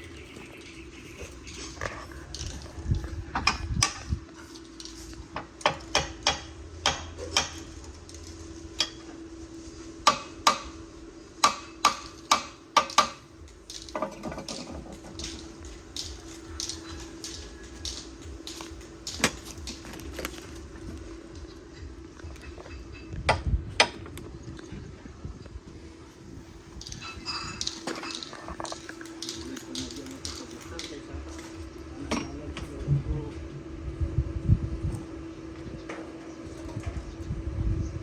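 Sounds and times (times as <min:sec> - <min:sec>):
metal tools clinking: 0:26.8 - 0:32.4.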